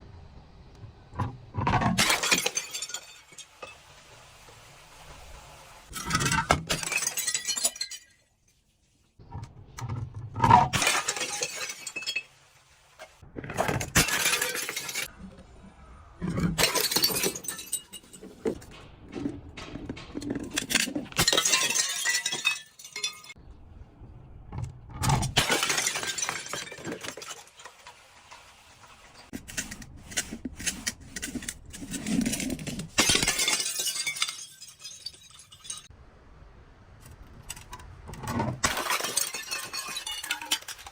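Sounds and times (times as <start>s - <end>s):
glass bottles shattering: 1.7s - 3.8s, 5.9s - 8.3s, 10.4s - 12.4s, 13.6s - 15.1s, 16.3s - 23.4s, 25.0s - 27.9s, 32.0s - 35.9s, 38.6s - 40.9s.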